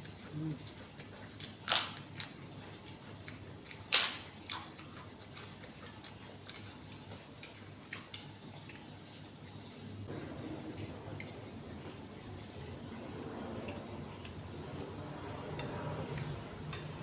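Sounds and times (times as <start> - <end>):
crunchy crackers being chewed: 0.0 - 9.6.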